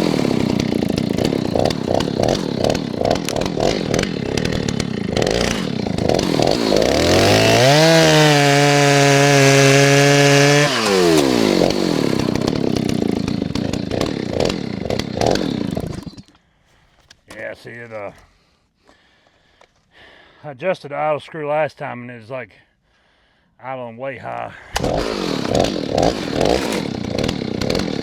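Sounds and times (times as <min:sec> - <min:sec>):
chainsaw idling and revving: 0:00.0 - 0:16.4, 0:24.6 - 0:28.0.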